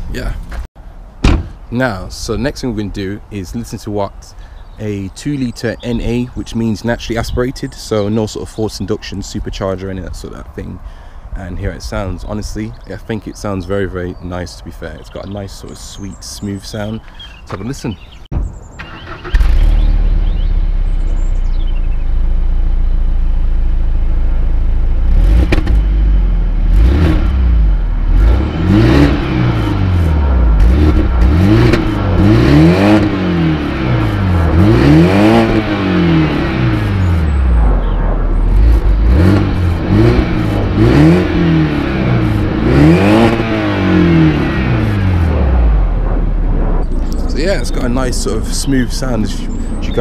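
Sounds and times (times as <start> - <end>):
car engine idling and revving: 18.4 - 50.0.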